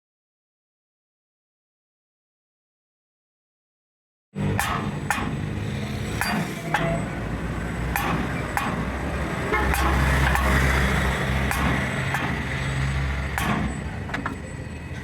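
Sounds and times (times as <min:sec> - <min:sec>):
engine running steadily: 0:04.4 - 0:15.0
sharp metallic knocks and clanks: 0:04.4 - 0:15.0.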